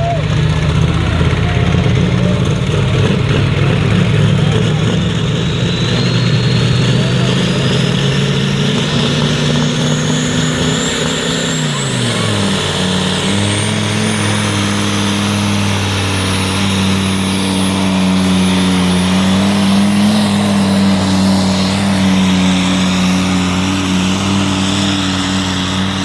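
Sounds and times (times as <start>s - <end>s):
engine droning at high revs: 0.0s - 26.0s.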